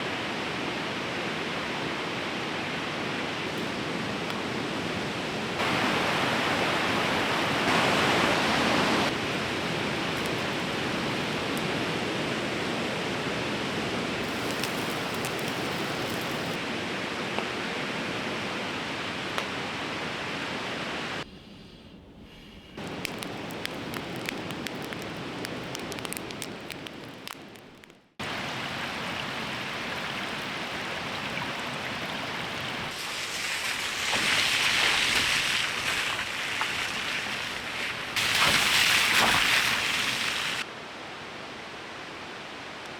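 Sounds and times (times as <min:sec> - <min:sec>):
river rushing: 0:05.6 - 0:21.2, 0:28.2 - 0:42.8.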